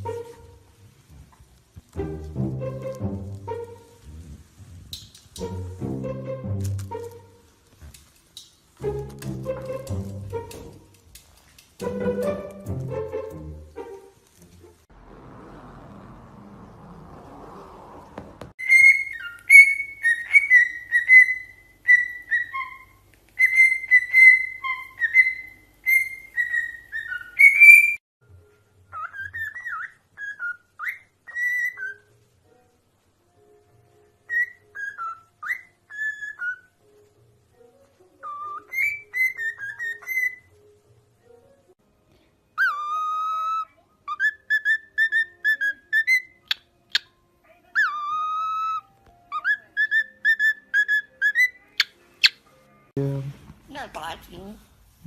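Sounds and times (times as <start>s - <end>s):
parrot whistling: 18.6s - 28.0s, 28.9s - 32.1s, 34.3s - 36.8s, 38.2s - 40.5s, 42.6s - 47.1s, 47.8s - 52.4s.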